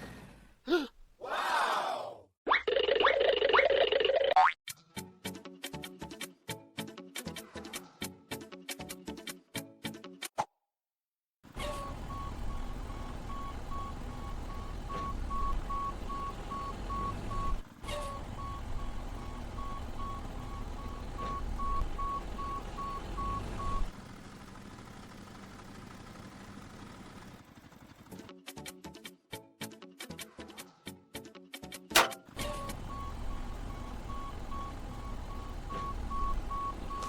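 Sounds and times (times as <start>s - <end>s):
low vehicle rumble: 11.5s - 28.0s, 32.3s - 37.0s
reversing alarm beeping: 11.6s - 23.9s, 32.4s - 37.0s.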